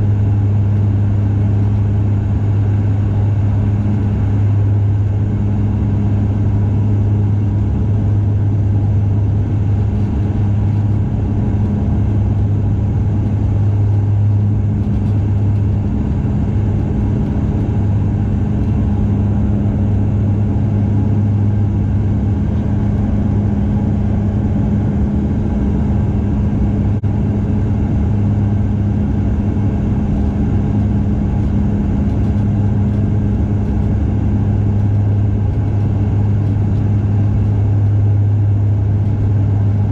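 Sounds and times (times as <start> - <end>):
turboprop engine drone in cabin: 0.0 - 39.9.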